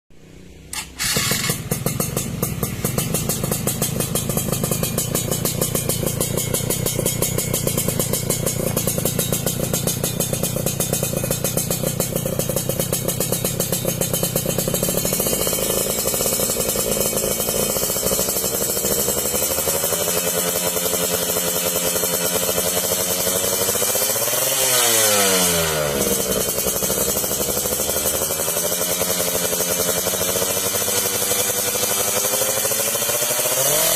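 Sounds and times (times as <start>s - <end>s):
two-stroke engine idling: 0.2s - 33.9s.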